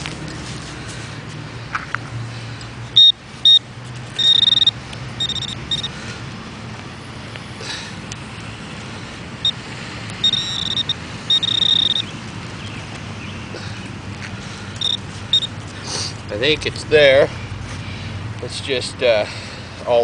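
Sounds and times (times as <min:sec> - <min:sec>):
metal detector pinpointer beeping: 0:03.0 - 0:03.6, 0:04.2 - 0:05.9, 0:10.2 - 0:12.1, 0:14.8 - 0:15.5.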